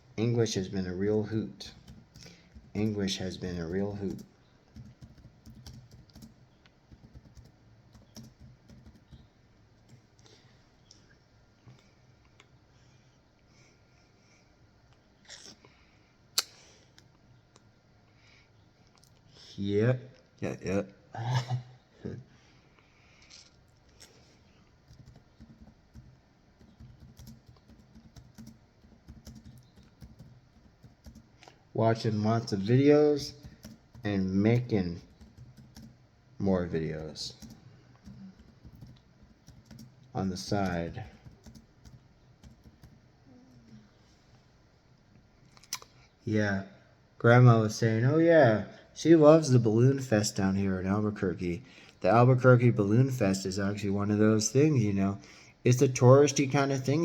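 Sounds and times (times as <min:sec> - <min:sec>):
typing on a keyboard: 0:01.7 - 0:10.0, 0:24.8 - 0:31.2, 0:33.3 - 0:35.9, 0:37.2 - 0:43.0.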